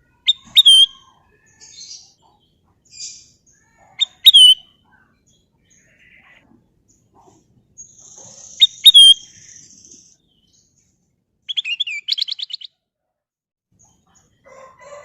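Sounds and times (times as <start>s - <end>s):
faint bird chirps: 0.0s - 12.8s
bulbul whistled calls: 0.3s - 2.1s, 4.0s - 4.7s, 7.8s - 10.2s.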